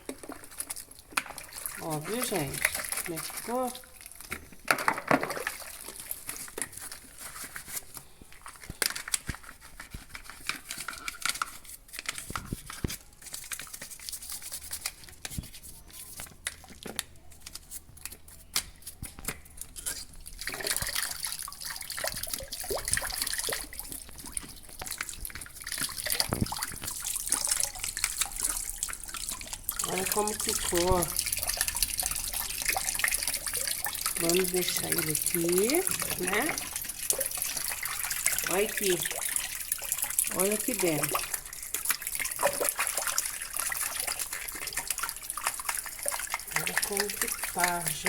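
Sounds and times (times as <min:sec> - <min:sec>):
water splashing and dripping: 0:00.0 - 0:07.1, 0:20.2 - 0:48.0
scrubbing: 0:00.0 - 0:12.1, 0:17.6 - 0:48.0.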